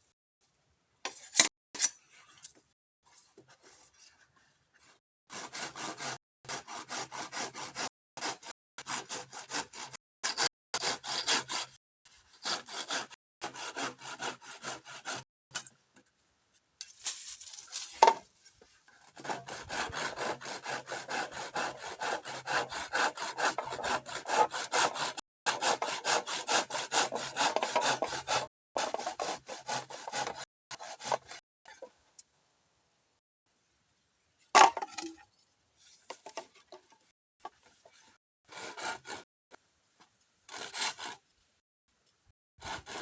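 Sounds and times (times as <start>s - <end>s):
saw cutting bamboo: 5.3s - 15.6s, 19.0s - 31.8s, 37.8s - 39.3s, 40.5s - 41.2s, 42.6s - 43.0s.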